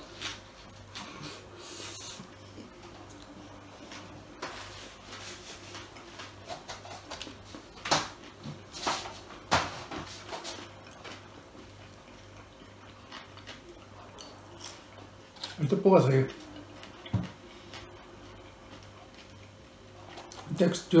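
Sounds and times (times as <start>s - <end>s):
chewing food: 10.5s - 15.6s, 16.3s - 20.5s.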